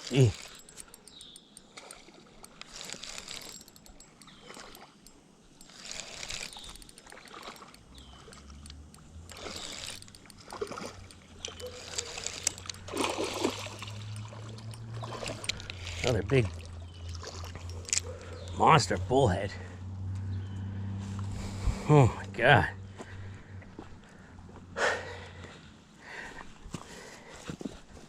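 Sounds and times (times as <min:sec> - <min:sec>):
water splashing and sloshing: 0:00.0 - 0:18.4.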